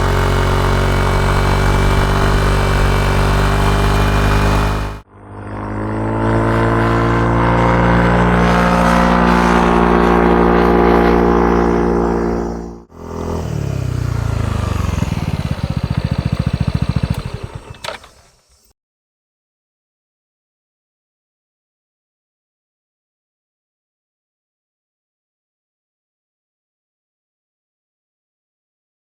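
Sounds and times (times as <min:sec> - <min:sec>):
scooter engine revving and idling: 0:00.0 - 0:18.7.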